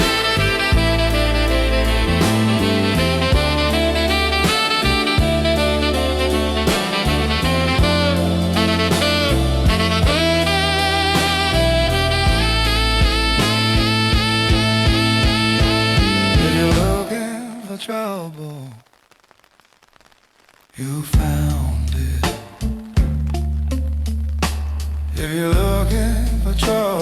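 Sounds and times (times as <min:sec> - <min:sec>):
bass: 0:00.0 - 0:17.1, 0:21.2 - 0:27.0
drum kit: 0:00.0 - 0:17.2, 0:21.1 - 0:27.0
saxophone solo: 0:00.0 - 0:17.6.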